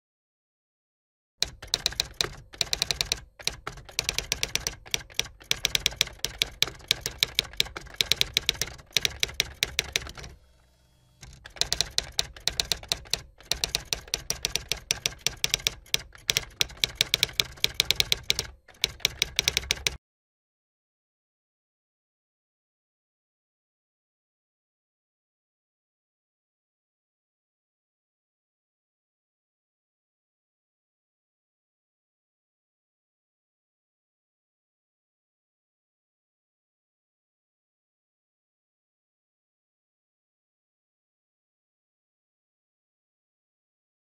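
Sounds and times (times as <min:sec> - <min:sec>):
keyboard key clicks: 0:01.4 - 0:10.4, 0:11.2 - 0:20.0.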